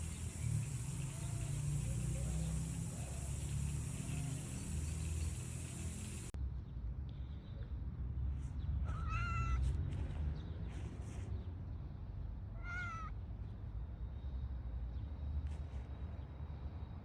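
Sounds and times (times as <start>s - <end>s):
cat meowing: 8.9s - 9.7s, 12.6s - 13.1s.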